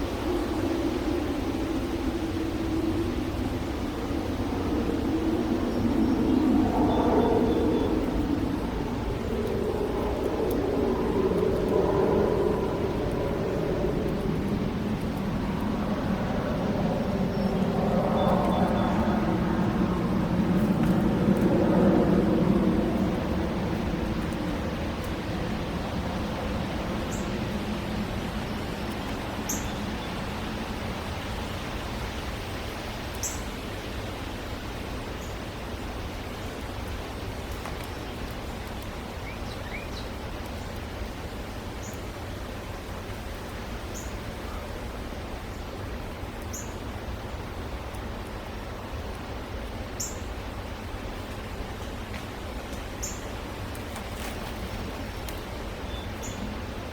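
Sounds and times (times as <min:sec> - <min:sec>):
outdoor background hiss: 0:24.2 - 0:56.9.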